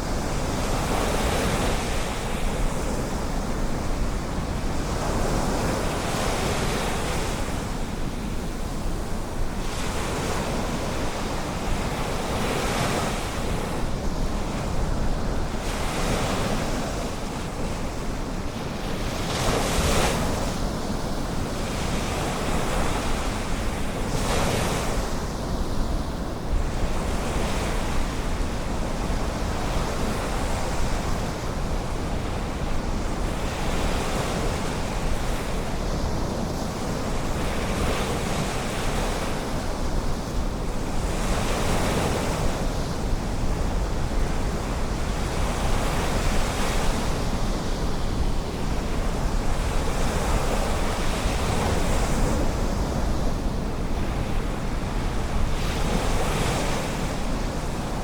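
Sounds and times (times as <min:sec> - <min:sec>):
ocean surf breaking on beach: 0:00.0 - 0:58.0
wind rumble on microphone: 0:00.0 - 0:58.0.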